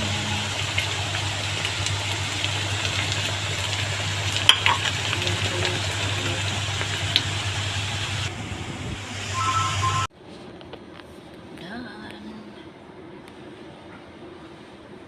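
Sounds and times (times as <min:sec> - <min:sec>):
low hum: 0:00.0 - 0:04.4, 0:06.4 - 0:15.0
chicken sizzling in a pan: 0:00.0 - 0:08.3.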